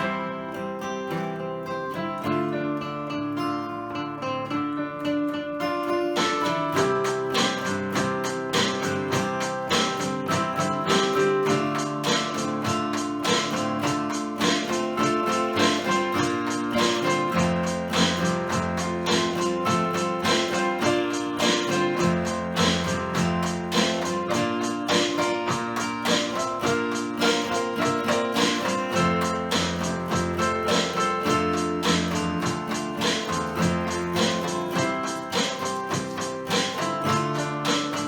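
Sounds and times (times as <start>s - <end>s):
acoustic guitar strumming: 0.0s - 38.0s.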